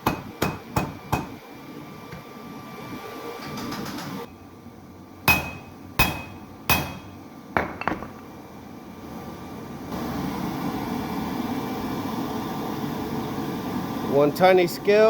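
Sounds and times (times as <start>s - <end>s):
hammer striking steel: 5.3s - 8.2s.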